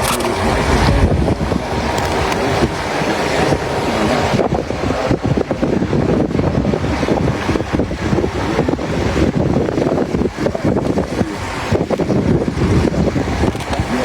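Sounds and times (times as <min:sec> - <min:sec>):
vehicle and road noise: 0:00.0 - 0:06.7, 0:09.6 - 0:14.0
wind buffeting microphone: 0:00.0 - 0:14.0.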